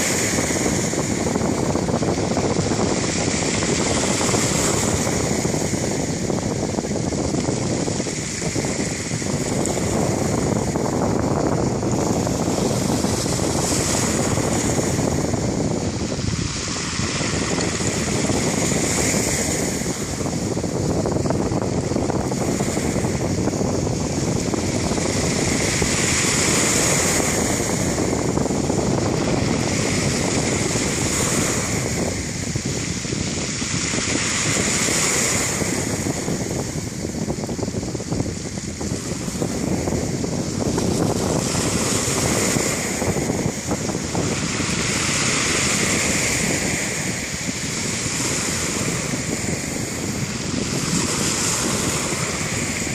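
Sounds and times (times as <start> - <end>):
surf washing onto beach: 0.0 - 52.9
wind rumbling on microphone: 0.0 - 52.9.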